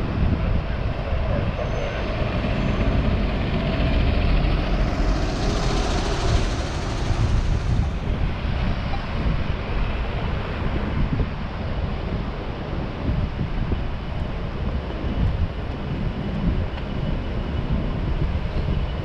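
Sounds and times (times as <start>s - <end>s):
low traffic rumble: 0.0s - 19.0s
vehicle passing: 1.2s - 8.5s.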